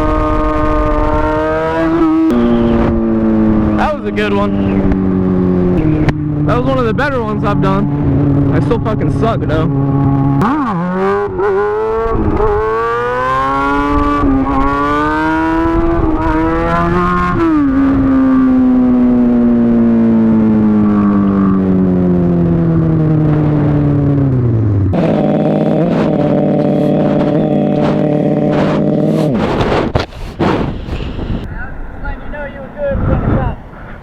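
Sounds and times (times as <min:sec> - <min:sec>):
motorcycle engine revving: 0:00.0 - 0:06.8, 0:09.7 - 0:19.6, 0:25.0 - 0:31.5.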